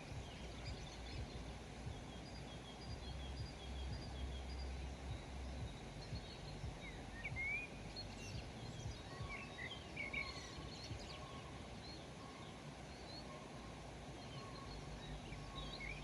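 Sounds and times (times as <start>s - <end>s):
low background rumble: 0.0s - 16.0s
songbirds chirping: 0.0s - 16.0s.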